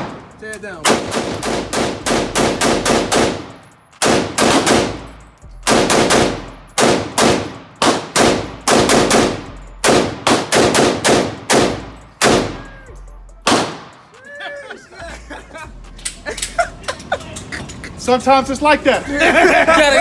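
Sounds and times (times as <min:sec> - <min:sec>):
rapid gunshots ringing: 0:00.0 - 0:12.7, 0:13.4 - 0:14.1.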